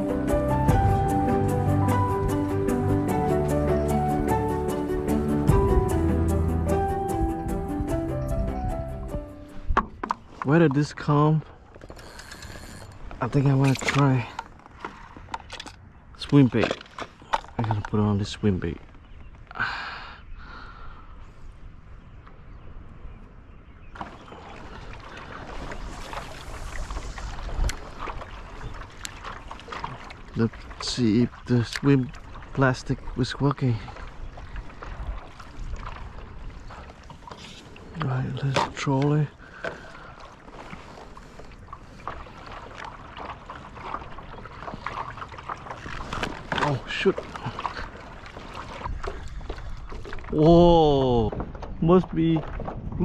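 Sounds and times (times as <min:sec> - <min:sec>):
wind rumbling on microphone: 0:00.0 - 0:10.4, 0:20.4 - 0:38.6, 0:39.3 - 0:53.0
water noise around kayak: 0:00.0 - 0:53.0
hissing water wash: 0:24.0 - 0:30.5.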